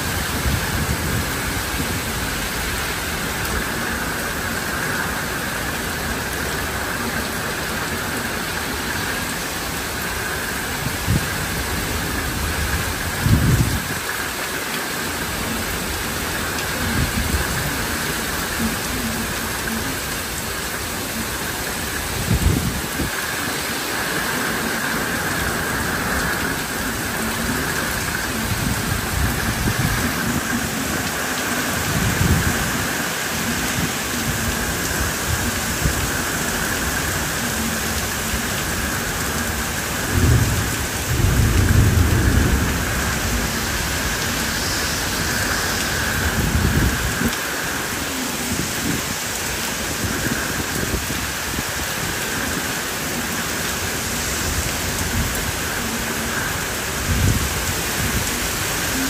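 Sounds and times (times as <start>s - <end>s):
heavy rain pouring: 0.0s - 59.0s
low thunder rumbles: 24.6s - 36.1s, 38.0s - 47.4s.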